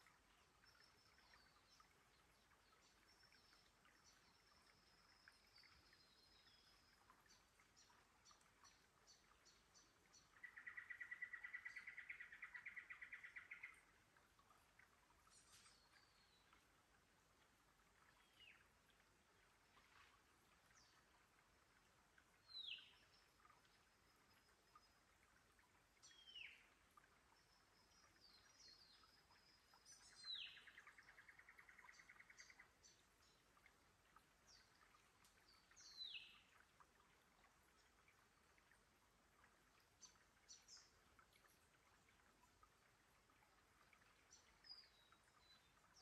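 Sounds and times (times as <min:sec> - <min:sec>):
faint steady hiss: 0:00.0 - 0:46.0.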